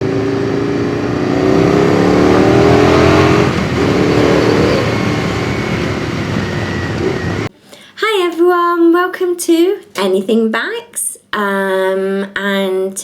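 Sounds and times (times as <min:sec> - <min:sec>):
engine revving: 0:00.0 - 0:07.5.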